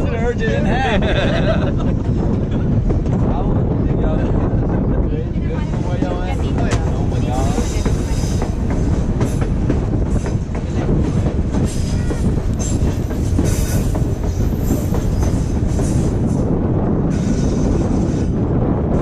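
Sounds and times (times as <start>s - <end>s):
train rumbling on track: 0.0s - 19.0s
wheels clacking over rails: 5.6s - 16.2s.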